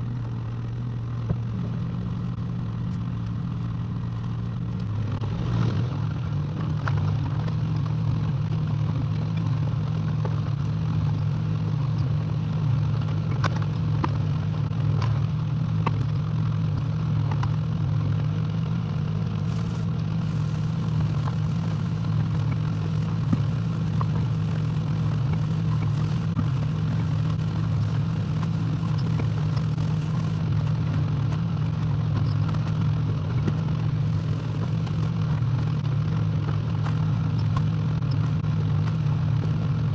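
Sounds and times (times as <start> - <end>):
excavator engine running: 19.3 - 30.6, 34.0 - 35.2.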